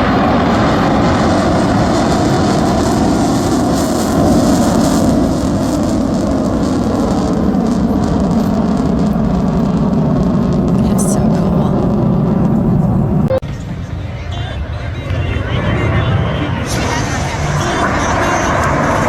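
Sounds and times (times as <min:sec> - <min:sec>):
jet engines roaring overhead: 0:00.0 - 0:19.0
faint tone dropping in pitch: 0:10.7 - 0:13.7.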